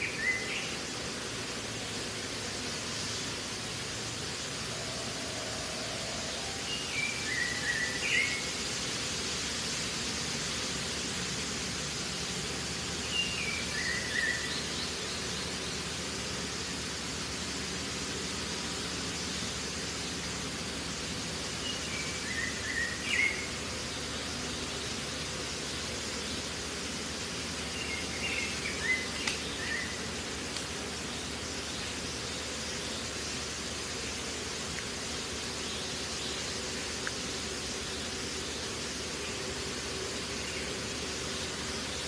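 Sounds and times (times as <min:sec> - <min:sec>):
outdoor noise hiss: 0:00.0 - 0:42.0.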